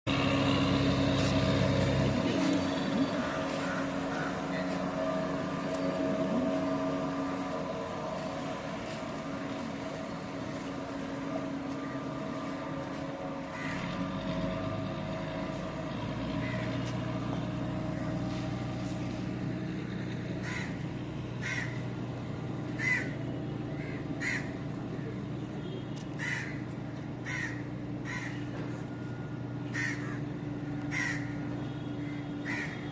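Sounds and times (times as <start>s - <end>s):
engine running: 0.0s - 32.9s
crows cawing: 2.4s - 14.8s, 16.4s - 18.2s, 20.3s - 22.0s, 22.7s - 24.7s, 26.2s - 28.8s, 29.6s - 32.9s.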